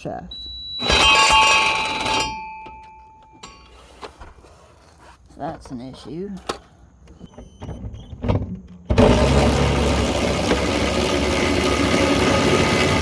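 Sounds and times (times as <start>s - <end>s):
power tool cutting metal: 0.8s - 2.4s, 9.0s - 13.0s.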